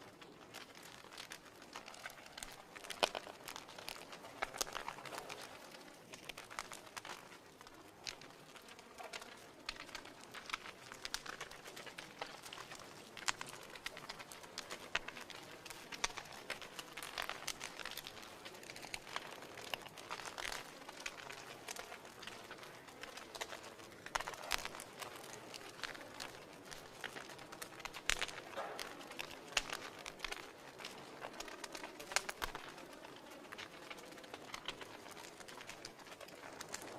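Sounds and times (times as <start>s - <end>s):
wood fire crackling: 0.0s - 36.9s.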